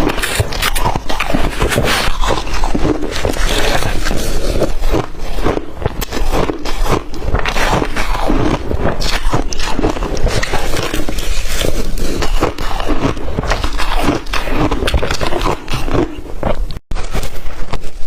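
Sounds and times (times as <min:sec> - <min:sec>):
person chewing crushed ice: 0:00.0 - 0:18.0.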